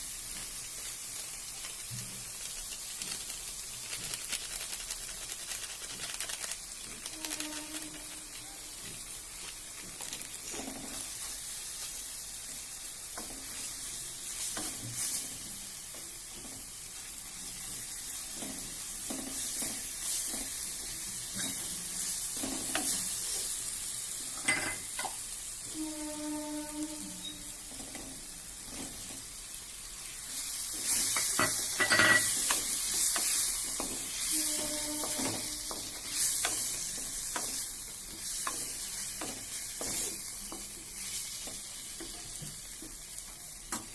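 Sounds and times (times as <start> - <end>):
food sizzling in hot oil: 0.0 - 43.9
spatula scraping pan: 30.4 - 41.7.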